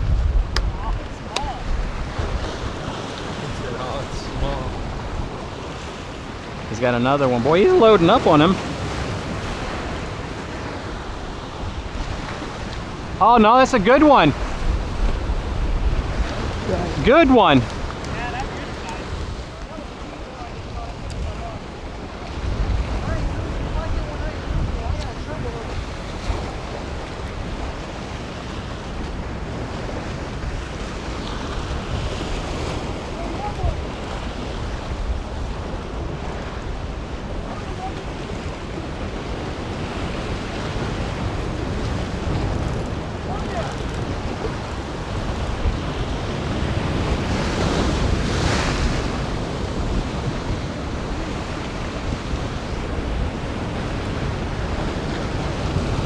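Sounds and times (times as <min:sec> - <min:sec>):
surf washing against rocks: 0:00.0 - 0:56.0
wind buffeting microphone: 0:00.0 - 0:56.0.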